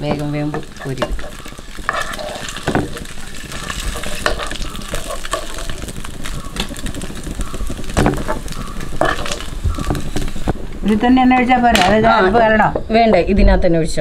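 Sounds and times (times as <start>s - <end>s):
mussels sizzling in hot oil: 0.0s - 13.2s.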